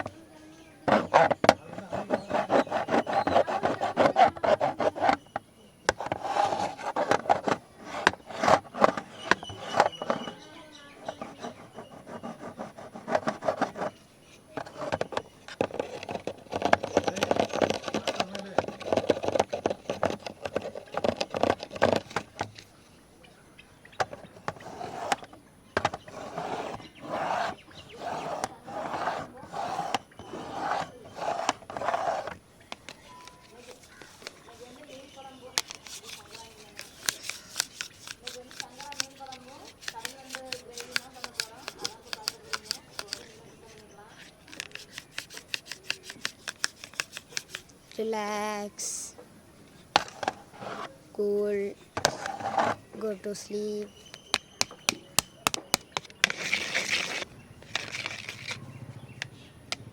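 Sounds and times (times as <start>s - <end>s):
fingernails scratching camera body: 0.8s - 22.7s, 23.9s - 48.2s, 49.8s - 58.8s.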